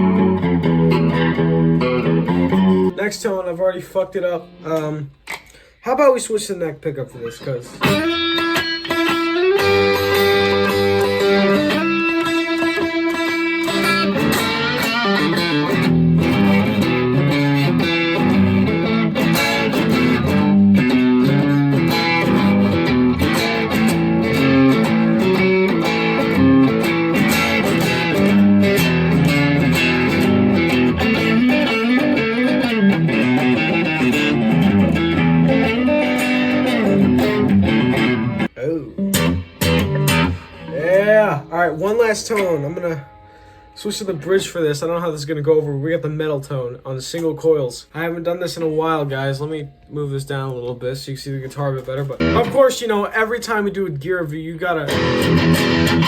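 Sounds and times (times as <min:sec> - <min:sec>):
electric guitar notes: 0:00.0 - 0:03.0, 0:07.8 - 0:44.4, 0:52.2 - 0:52.7, 0:54.8 - 0:56.0.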